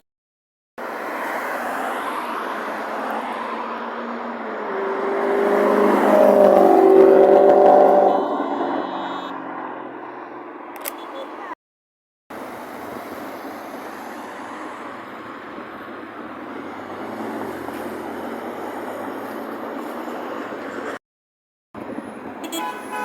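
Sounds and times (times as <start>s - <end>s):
street traffic noise: 0.8s - 11.6s, 12.3s - 21.0s, 21.8s - 23.0s
car engine revving: 4.0s - 10.0s.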